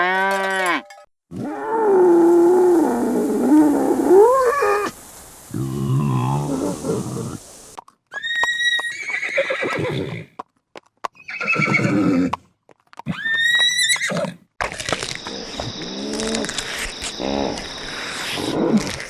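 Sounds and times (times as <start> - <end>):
horse whinnying: 8.1 - 10.3, 11.2 - 12.4, 13.1 - 14.4.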